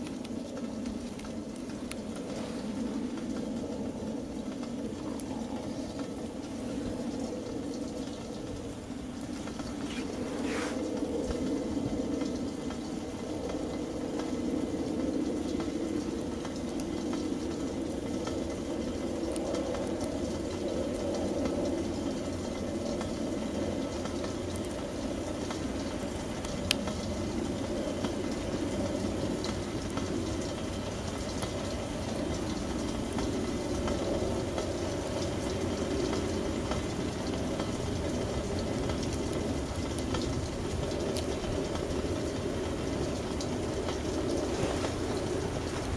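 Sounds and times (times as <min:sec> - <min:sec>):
campfire burning: 0:00.0 - 0:45.9
crackles and pops: 0:00.0 - 0:45.9.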